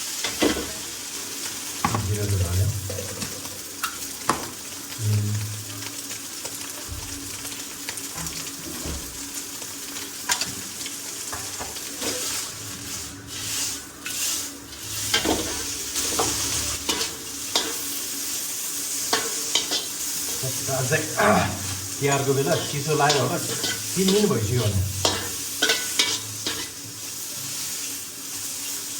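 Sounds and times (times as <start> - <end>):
food sizzling in a pan: 0.0 - 28.9
utensil scraping a pan: 19.1 - 26.8.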